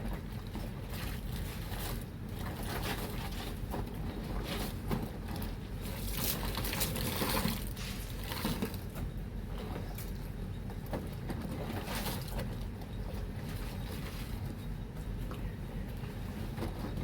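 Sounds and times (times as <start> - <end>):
water sloshing and splashing: 0.5 - 10.1.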